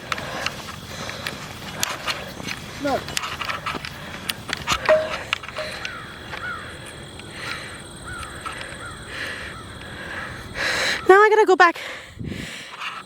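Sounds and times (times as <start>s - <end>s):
footsteps clicking: 0.0s - 6.5s
bird cawing: 4.8s - 10.4s.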